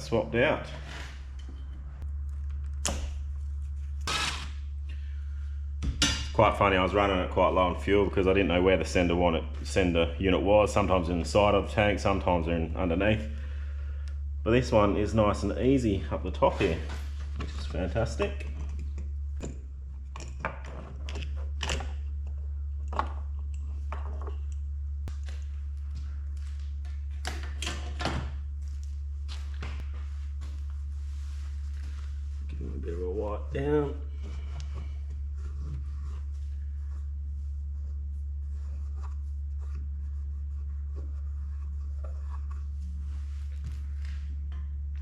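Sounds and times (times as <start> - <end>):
steady low hum: 0.0 - 45.0
cloth wiping and rubbing: 29.2 - 32.7, 34.4 - 44.4.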